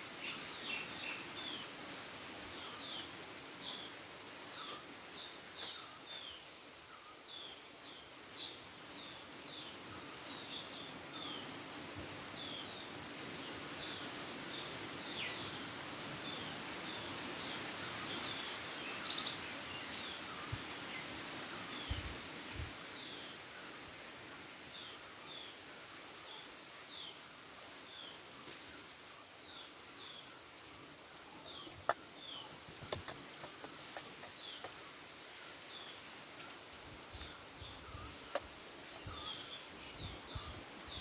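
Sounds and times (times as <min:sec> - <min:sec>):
steady background hiss: 0:00.0 - 0:41.0
bird chirping: 0:31.4 - 0:34.9.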